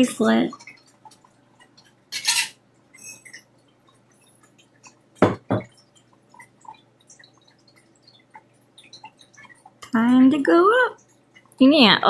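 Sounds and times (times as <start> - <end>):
faint clicks and taps: 0.2 - 2.0, 2.8 - 11.6
sharp knocks: 5.2 - 5.7.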